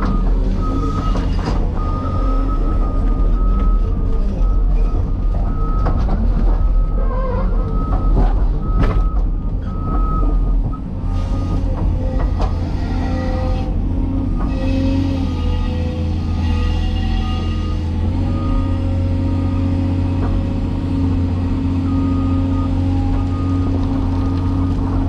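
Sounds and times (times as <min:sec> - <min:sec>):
excavator diesel engine running: 0:00.0 - 0:25.0
knocks and clanks: 0:11.4 - 0:13.1.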